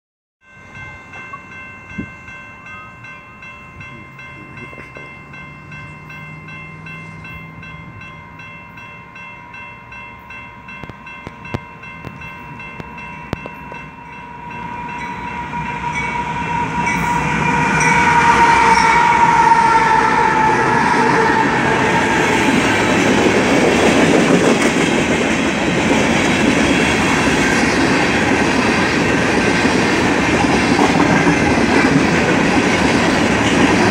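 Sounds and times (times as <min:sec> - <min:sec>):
train air horn chord: 0:14.3 - 0:22.7
hopper cars rolling by: 0:14.4 - 0:33.9.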